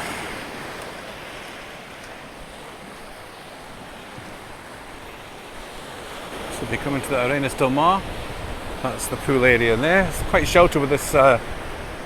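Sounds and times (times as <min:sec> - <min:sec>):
surf washing on shore: 0:00.0 - 0:12.0
wind on microphone: 0:05.6 - 0:12.0.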